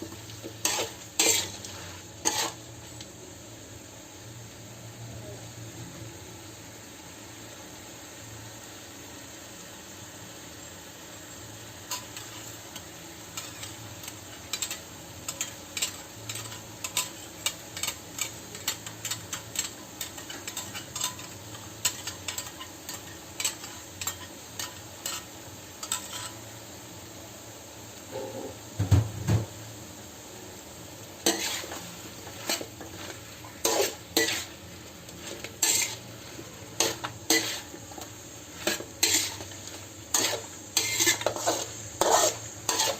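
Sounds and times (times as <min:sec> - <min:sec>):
food sizzling in a pan: 0:00.0 - 0:42.9
utensil scraping a pan: 0:00.4 - 0:02.6, 0:11.9 - 0:26.4, 0:31.2 - 0:42.9.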